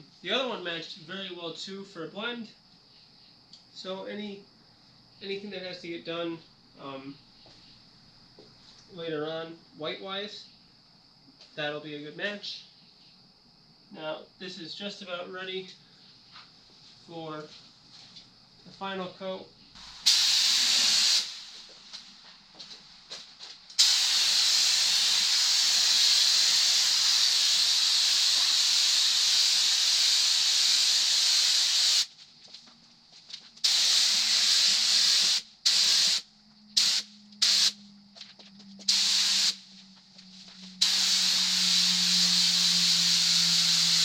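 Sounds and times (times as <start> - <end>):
spray gun hissing: 19.8 - 21.8, 23.8 - 32.1, 33.6 - 36.2, 36.8 - 37.8, 38.9 - 39.7, 40.8 - 44.0.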